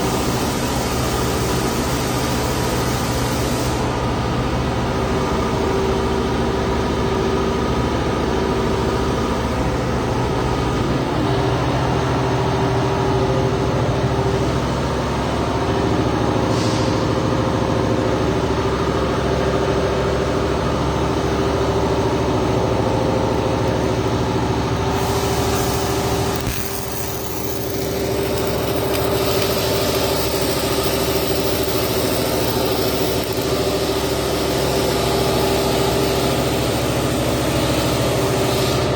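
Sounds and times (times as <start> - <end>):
machine humming: 20.4 - 38.5
high hiss: 24.8 - 37.2.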